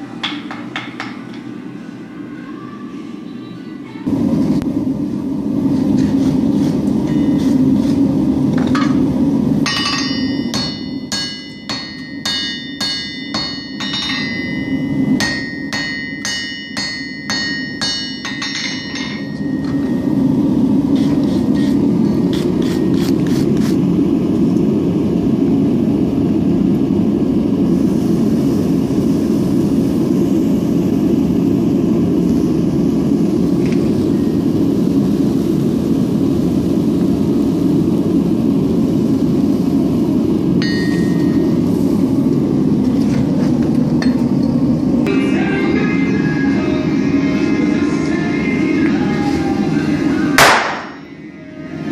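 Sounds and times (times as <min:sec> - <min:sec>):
hammer striking steel on anvil: 0:00.2 - 0:01.4, 0:07.0 - 0:07.5, 0:09.6 - 0:20.0, 0:40.6 - 0:41.5, 0:50.4 - 0:51.0.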